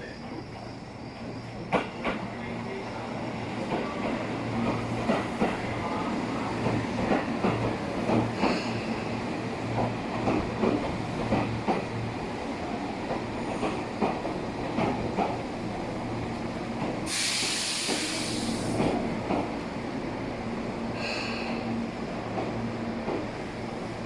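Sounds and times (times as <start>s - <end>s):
train wheels clacking over rail joints: 3.6s - 5.8s, 6.6s - 9.1s, 9.7s - 12.2s, 13.0s - 15.7s.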